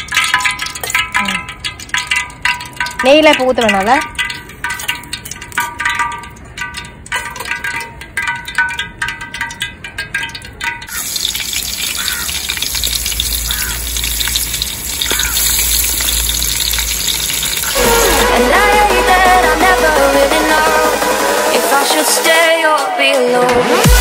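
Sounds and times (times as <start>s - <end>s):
metal ladle clinking in pot: 0.0s - 17.8s
hot oil hissing: 10.9s - 19.2s.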